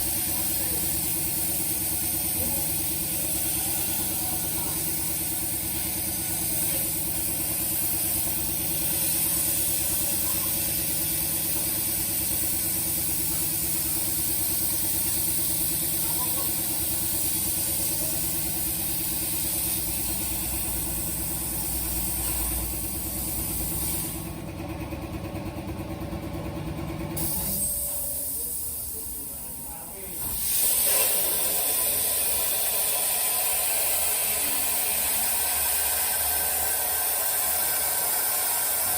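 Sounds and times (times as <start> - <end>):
plasma cutter hissing: 0.0 - 24.4, 27.2 - 38.9.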